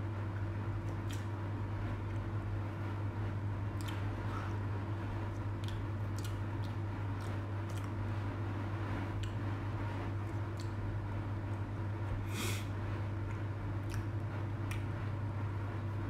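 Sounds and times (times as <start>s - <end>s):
low electrical hum: 0.0s - 16.0s
chewing soft cake: 0.1s - 16.0s
wet mouth clicks: 3.8s - 4.1s, 5.6s - 8.0s, 10.3s - 10.8s, 13.3s - 14.9s.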